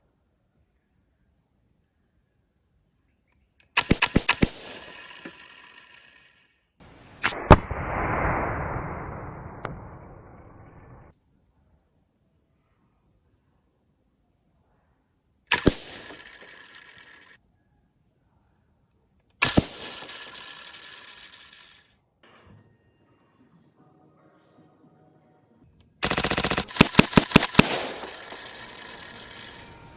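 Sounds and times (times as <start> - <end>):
slingshot shots cracking and clattering: 3.8 - 6.2, 15.5 - 17.4, 19.4 - 21.6, 26.0 - 29.7.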